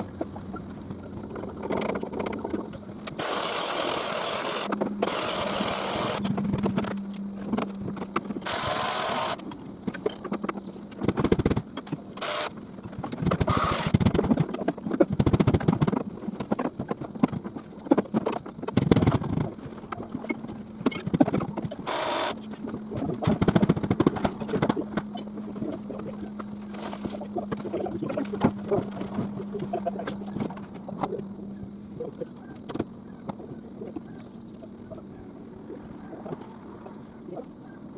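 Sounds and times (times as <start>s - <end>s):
machine engine running: 0.0s - 14.5s, 20.2s - 35.7s.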